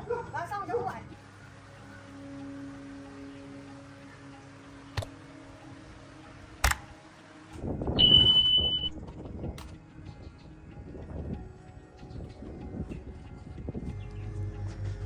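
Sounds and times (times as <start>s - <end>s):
high electronic beep: 8.0s - 9.0s.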